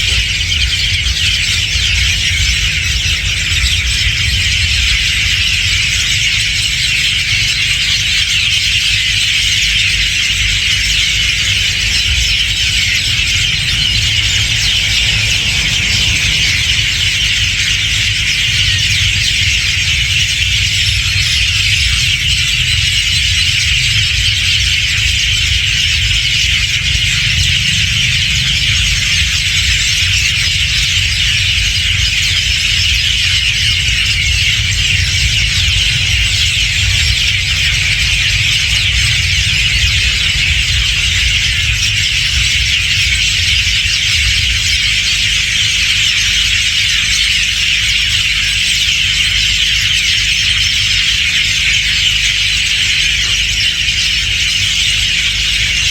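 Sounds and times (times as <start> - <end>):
large flock of birds chattering: 0.0 - 55.9
low rumble: 10.2 - 46.2.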